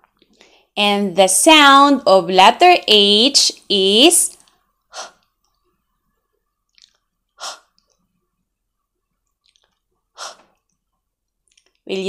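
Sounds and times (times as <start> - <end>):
woman's breathy h sounds: 4.9 - 5.2, 7.4 - 7.7, 10.2 - 10.5.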